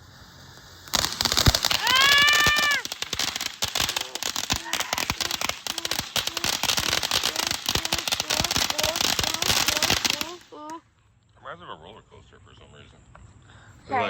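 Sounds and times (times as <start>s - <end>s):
firework crackling: 0.0s - 10.8s.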